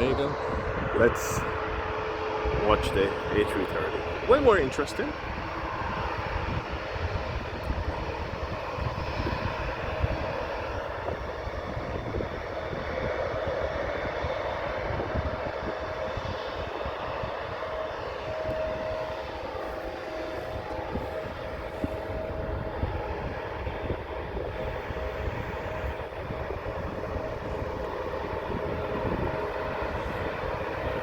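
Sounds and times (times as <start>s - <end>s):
jet engine rumble: 0.0s - 31.0s
jet engine whine: 0.0s - 31.0s.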